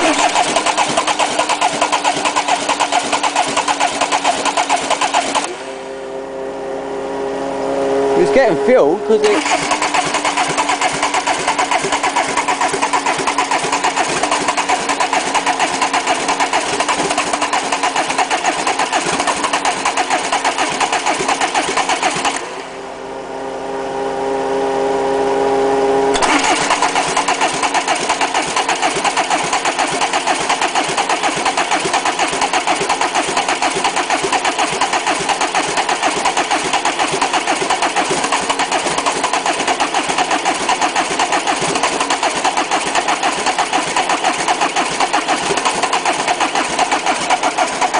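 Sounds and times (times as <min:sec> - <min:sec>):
diesel engine cranking: 0:00.0 - 0:05.8, 0:08.2 - 0:22.8, 0:26.1 - 0:47.9.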